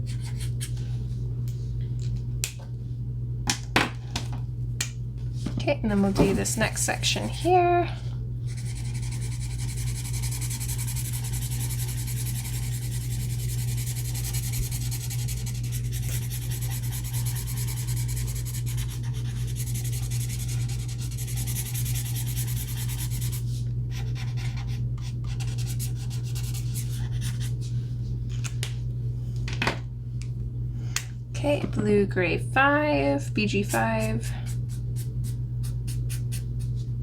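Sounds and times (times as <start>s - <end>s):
steady low hum: 0.0s - 37.0s
marker nib rubbing on paper: 8.5s - 23.4s.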